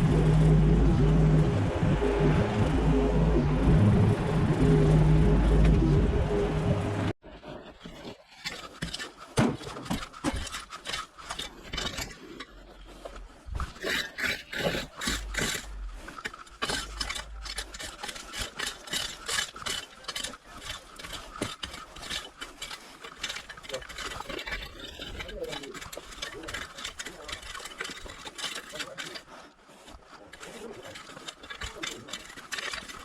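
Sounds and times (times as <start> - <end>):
engine running: 0.0 - 7.2, 14.9 - 18.3
scraping and rubbing: 0.0 - 33.0.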